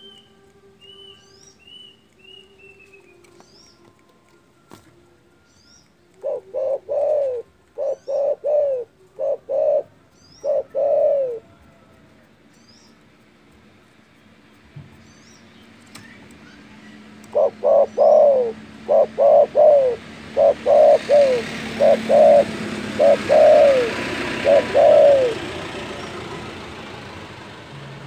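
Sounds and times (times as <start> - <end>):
dove cooing: 6.1 - 11.6, 17.2 - 26.1.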